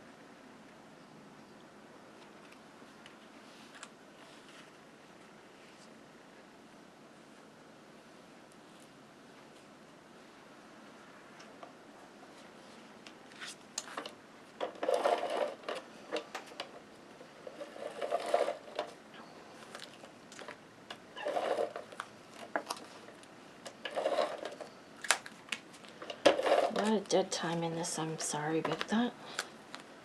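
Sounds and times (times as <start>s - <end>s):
tape runner rolling on paper: 13.2s - 19.0s, 19.6s - 29.4s.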